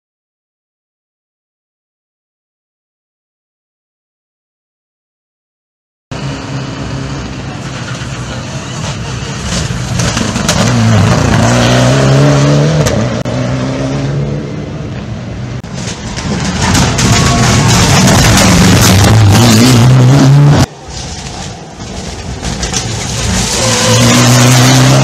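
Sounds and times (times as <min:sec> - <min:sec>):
rally car engine at high revs: 0:10.0 - 0:14.4, 0:17.5 - 0:20.7, 0:23.1 - 0:25.0.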